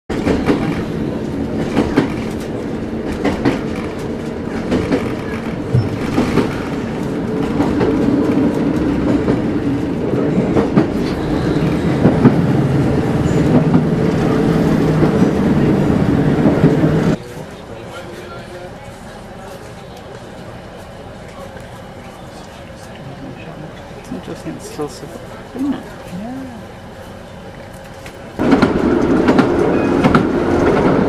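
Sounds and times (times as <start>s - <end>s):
wheels clicking over rail joints: 0.1s - 12.5s
train engine drone: 0.1s - 31.0s.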